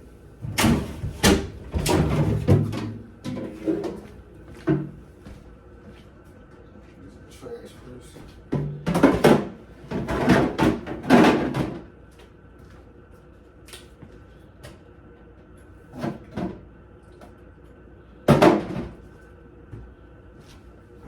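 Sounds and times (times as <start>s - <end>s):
items bumping in refrigerator: 0.4s - 5.0s, 8.5s - 11.9s, 15.9s - 16.6s, 18.3s - 19.1s.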